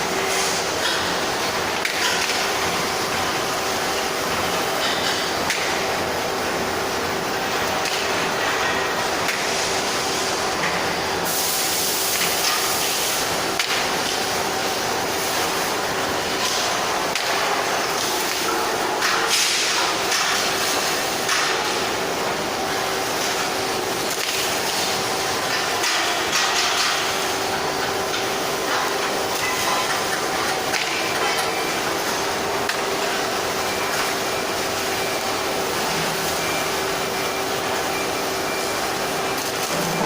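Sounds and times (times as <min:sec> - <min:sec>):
welding hiss: 0:09.4 - 0:23.6.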